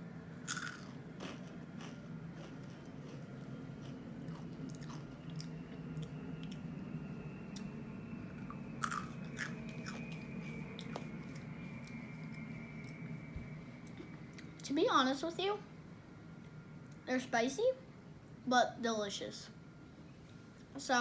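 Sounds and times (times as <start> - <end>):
steady low hum: 0.0 - 21.0
crunching tortilla chips: 0.4 - 6.6, 8.8 - 10.1.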